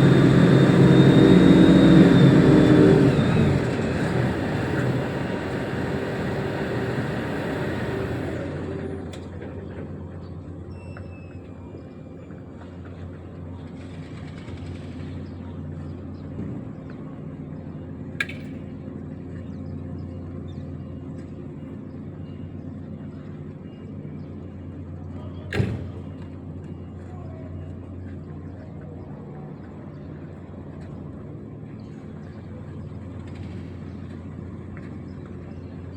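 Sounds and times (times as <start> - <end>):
diesel engine idling: 0.0 - 10.7.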